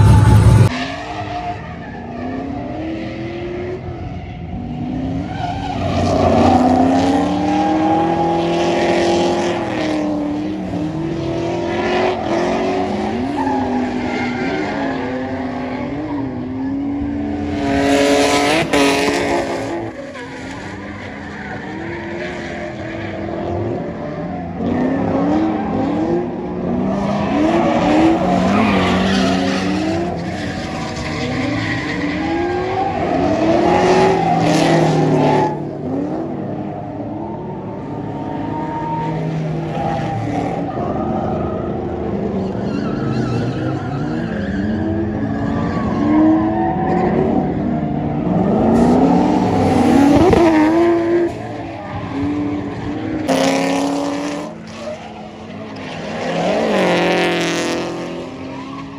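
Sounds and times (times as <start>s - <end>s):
car engines revving: 0.0s - 58.9s
tyre noise: 48.7s - 51.5s.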